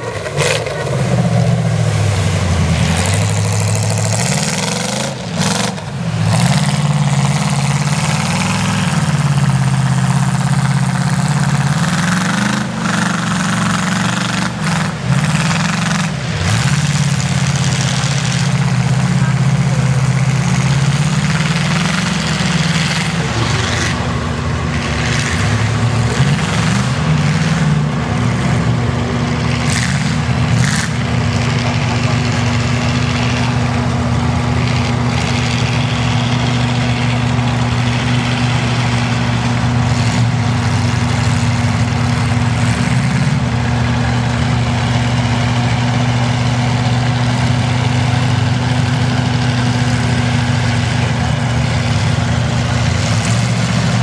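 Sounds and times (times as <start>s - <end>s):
truck engines running: 0.0s - 54.0s.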